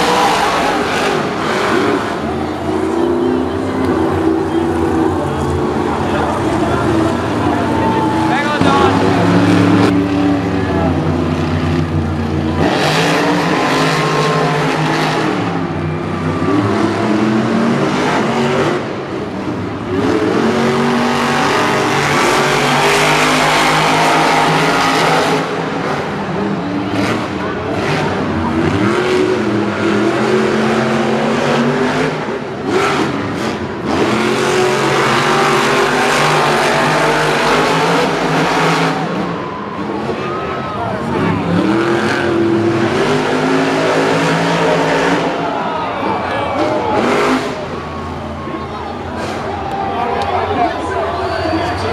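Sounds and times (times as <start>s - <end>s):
monster truck engines revving: 0.0s - 51.9s
stadium din: 6.2s - 11.0s.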